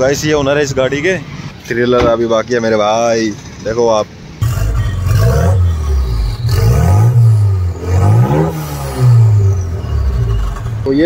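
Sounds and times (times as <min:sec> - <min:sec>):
car engine revving: 0:04.4 - 0:11.0.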